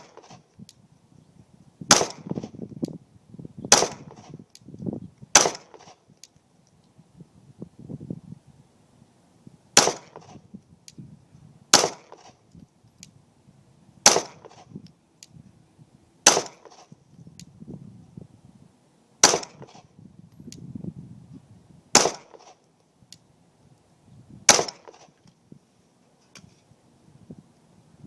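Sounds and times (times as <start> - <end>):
pistol shots: 1.9 - 2.6, 3.7 - 4.4, 5.3 - 6.0, 9.8 - 10.4, 11.7 - 12.4, 14.0 - 14.7, 16.2 - 17.0, 19.2 - 19.9, 21.9 - 22.6, 24.5 - 25.1.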